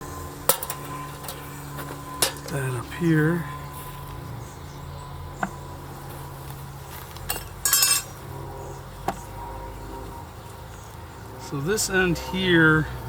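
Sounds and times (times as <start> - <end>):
steady low hum: 0.0 - 13.0
ringing clinks: 0.5 - 2.8, 7.2 - 8.2.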